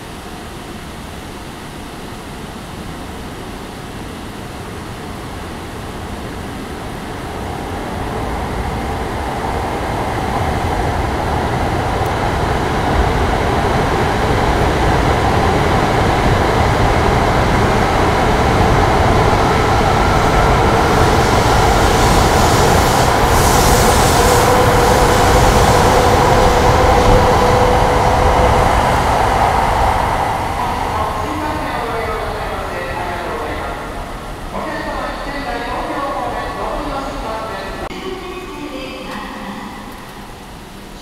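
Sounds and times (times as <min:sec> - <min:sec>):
train wheels rumbling: 0:06.9 - 0:37.9.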